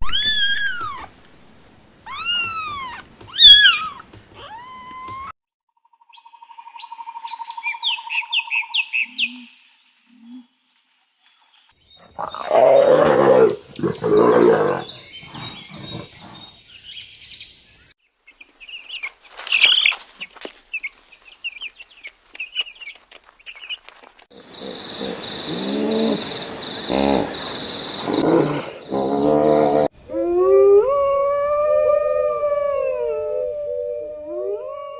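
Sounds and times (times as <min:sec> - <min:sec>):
small birds chirping: 0:13.4 - 0:24.2.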